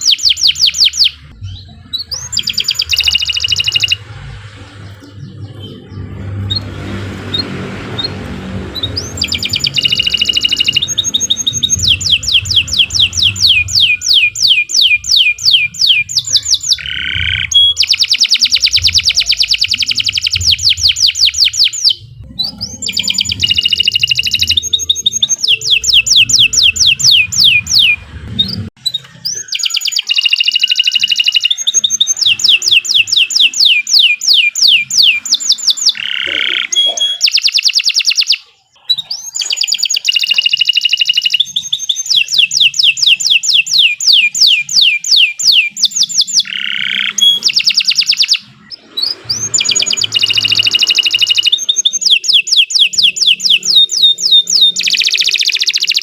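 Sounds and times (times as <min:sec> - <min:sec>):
canary singing trills: 0:00.0 - 0:56.0
faint low rumble: 0:01.2 - 0:14.2, 0:22.0 - 0:28.8.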